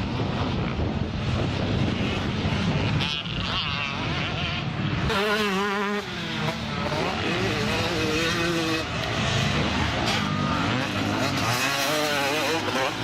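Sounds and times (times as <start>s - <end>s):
wind noise on microphone: 0.0s - 6.2s
motocross bike engines revving: 0.0s - 13.0s.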